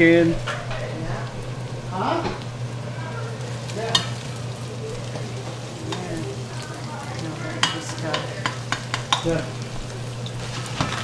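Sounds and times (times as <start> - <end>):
onion and garlic sizzling: 0.0 - 11.0
steady low hum: 0.0 - 11.0
metal spoon clinking on pot: 7.6 - 9.6.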